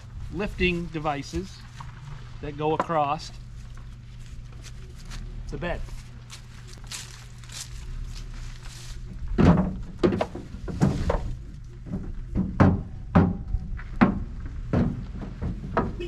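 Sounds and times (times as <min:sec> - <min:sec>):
low hum: 0:00.0 - 0:16.0
wooden boards thunking: 0:09.3 - 0:16.0.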